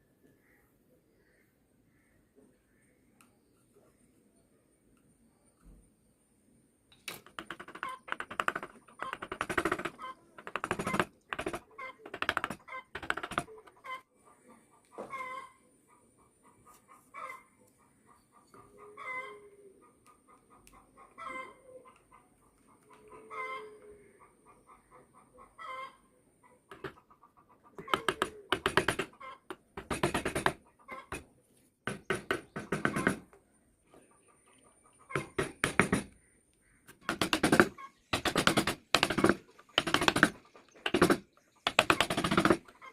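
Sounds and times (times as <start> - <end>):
chicken cackling: 9.8 - 11.0, 11.6 - 29.7, 30.6 - 31.3, 42.7 - 42.9.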